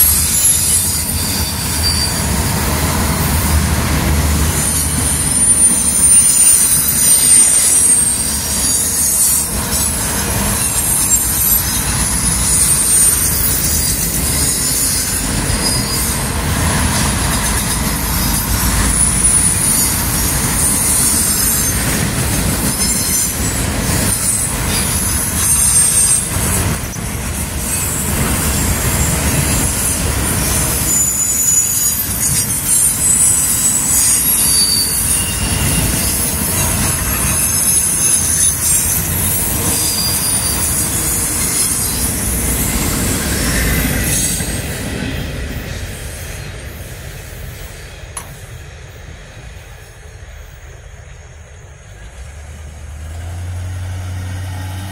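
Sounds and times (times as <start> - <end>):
high-pitched wheel squeal: 0.0 - 2.6, 4.4 - 27.1, 27.7 - 44.7
train cars rumbling on rails: 0.0 - 54.9.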